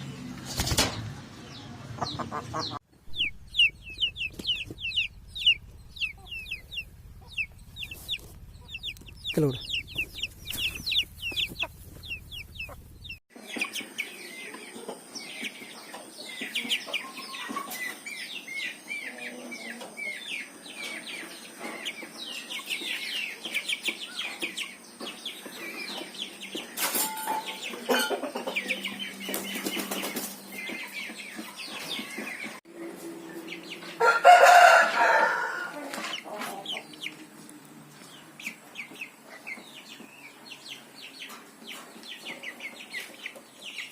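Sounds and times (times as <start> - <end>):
chickens clucking and calling: 0.0 - 43.9.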